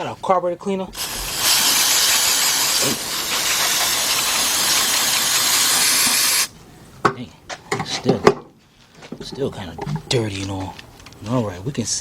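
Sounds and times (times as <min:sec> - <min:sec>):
aerosol can spraying hiss: 0:01.0 - 0:06.5.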